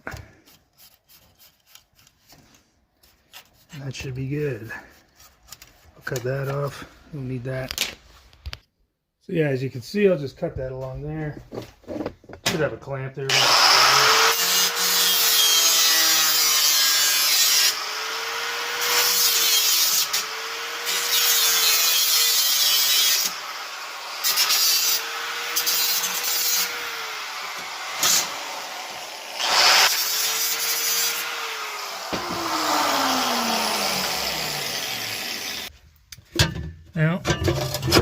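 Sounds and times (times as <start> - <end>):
power tool cutting steel: 13.3 - 35.7.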